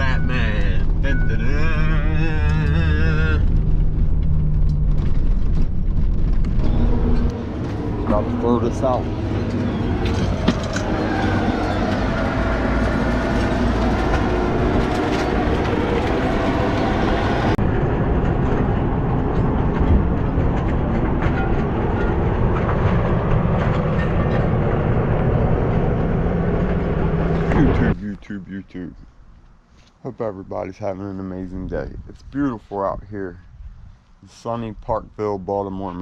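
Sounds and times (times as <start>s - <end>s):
loud engine running: 0.0s - 28.0s
rattling and clattering: 3.4s - 27.6s.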